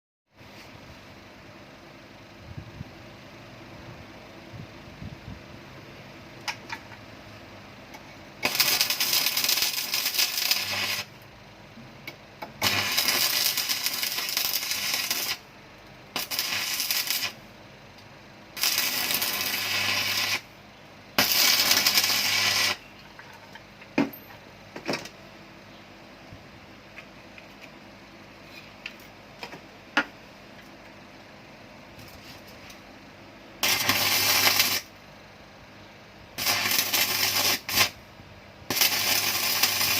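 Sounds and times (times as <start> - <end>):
low welder hum: 3.7 - 24.2, 31.9 - 39.9
welding arc sizzling: 8.4 - 11.3, 12.4 - 15.5, 16.1 - 17.5, 18.5 - 20.6, 21.2 - 22.9, 33.6 - 35.0, 36.4 - 39.9.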